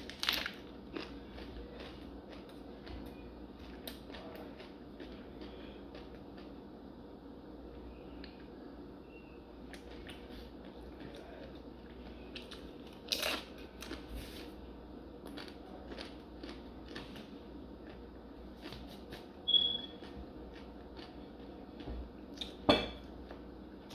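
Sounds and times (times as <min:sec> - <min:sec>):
crunchy chewing: 0:00.0 - 0:06.7, 0:09.6 - 0:14.6, 0:15.2 - 0:22.6
brief high squeak: 0:19.5 - 0:20.0.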